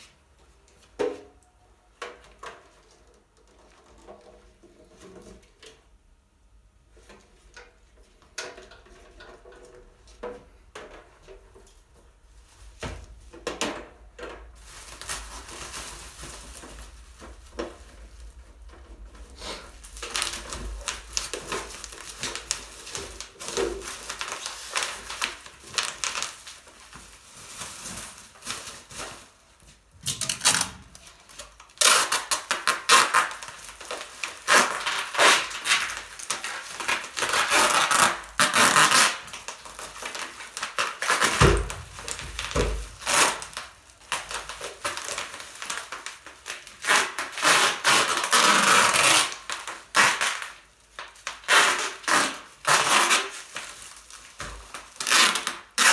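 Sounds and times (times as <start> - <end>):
objects clattering and rustling: 7.0 - 47.2.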